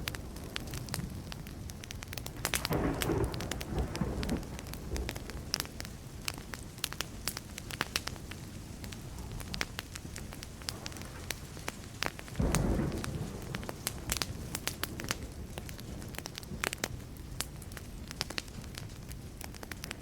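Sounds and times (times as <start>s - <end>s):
wood fire crackling and popping: 0.0s - 20.0s
distant thunder: 2.2s - 6.7s, 8.2s - 16.8s.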